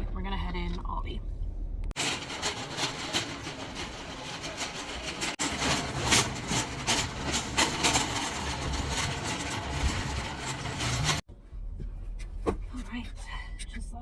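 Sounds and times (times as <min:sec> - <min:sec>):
irregular rattling and knocking: 0:01.9 - 0:11.3.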